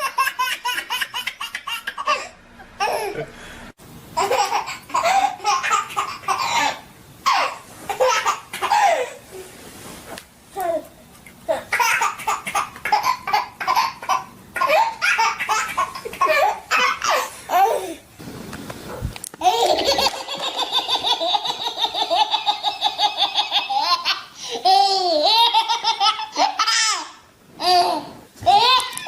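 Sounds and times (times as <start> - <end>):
young child laughing: 19.4 - 29.0.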